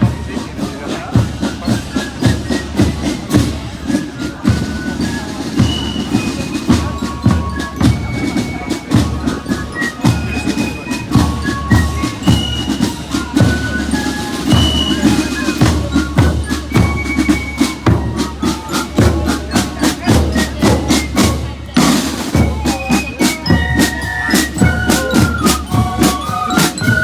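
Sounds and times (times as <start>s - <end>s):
bass drum and percussion beat: 0.0s - 27.0s
high bell-like melody: 22.4s - 27.0s.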